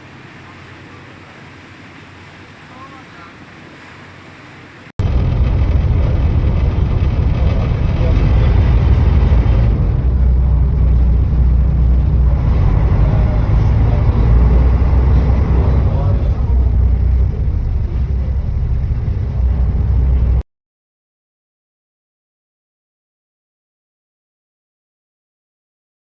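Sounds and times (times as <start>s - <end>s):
loud low rumble with noisy wash: 0.0s - 20.4s.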